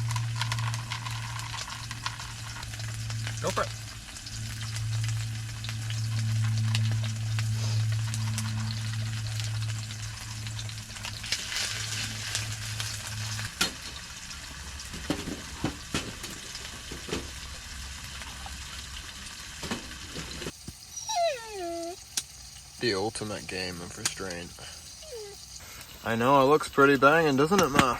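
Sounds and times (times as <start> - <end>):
low hum: 0.0 - 14.8
burger patty sizzling in pan: 0.0 - 27.9.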